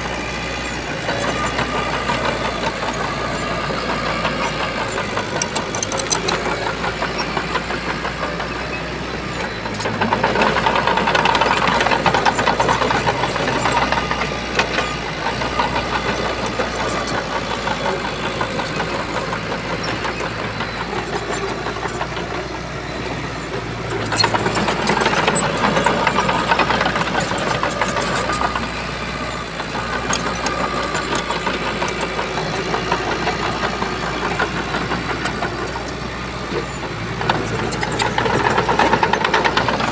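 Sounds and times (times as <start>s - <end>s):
bulldozer diesel engine running: 0.0s - 39.9s
metal clanks: 1.2s - 7.4s.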